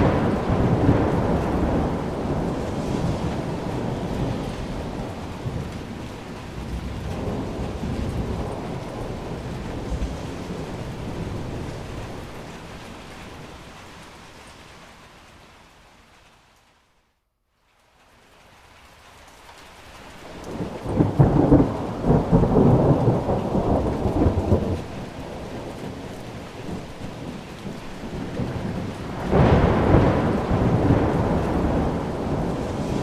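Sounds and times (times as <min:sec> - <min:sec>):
thunder rolling: 0:00.0 - 0:13.6, 0:20.4 - 0:33.0
rain falling steadily: 0:00.0 - 0:33.0.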